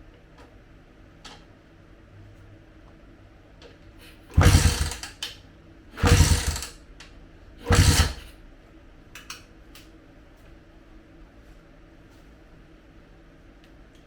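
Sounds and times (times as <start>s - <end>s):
power tool bursts: 4.3s - 5.2s, 6.0s - 6.7s, 7.6s - 8.3s.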